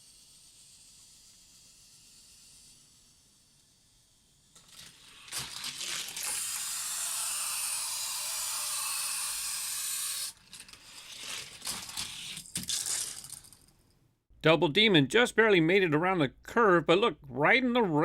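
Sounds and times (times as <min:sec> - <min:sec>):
toy car wheels whirring on track: 0:00.0 - 0:13.7
toy car clattering on track: 0:00.0 - 0:13.9.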